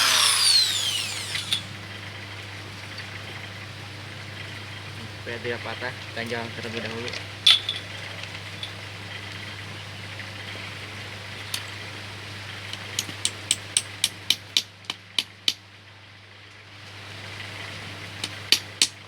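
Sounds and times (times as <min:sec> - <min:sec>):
low hum: 0:00.0 - 0:01.8.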